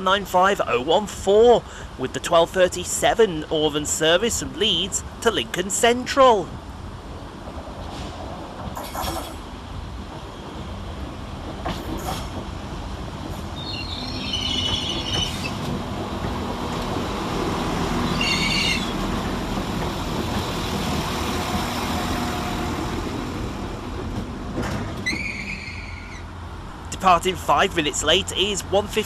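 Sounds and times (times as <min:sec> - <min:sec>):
train engine and wheels rumbling: 0:00.0 - 0:29.0
wheel or brake squeals: 0:13.6 - 0:15.6, 0:18.1 - 0:19.0, 0:25.0 - 0:26.3.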